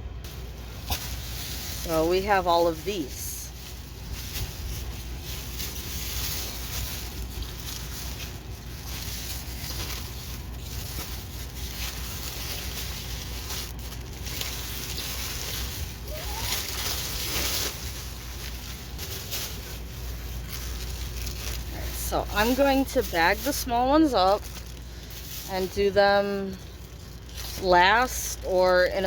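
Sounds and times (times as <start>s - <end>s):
plastic packaging rustling: 0.2s - 29.0s.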